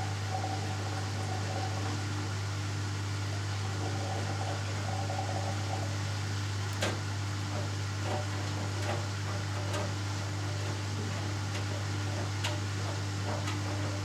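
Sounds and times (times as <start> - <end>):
washing machine motor hum: 3.1 - 14.0.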